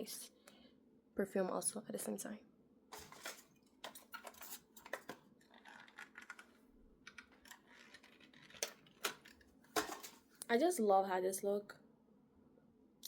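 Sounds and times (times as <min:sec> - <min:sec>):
small bottles and caps handled: 0:02.9 - 0:10.3.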